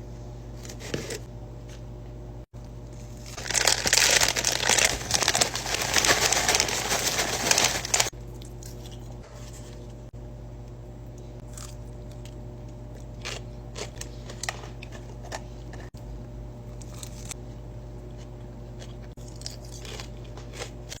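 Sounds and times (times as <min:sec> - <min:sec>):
low steady hum: 0:00.0 - 0:21.0
person chewing crunchy food: 0:11.4 - 0:16.0, 0:16.7 - 0:17.4, 0:18.1 - 0:21.0.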